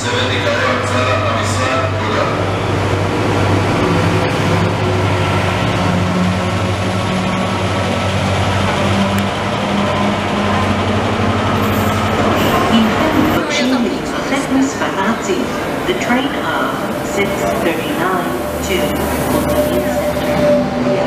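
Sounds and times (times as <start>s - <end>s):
locomotive engine hum: 0.0s - 21.0s
wheel and rail rumble: 0.0s - 21.0s.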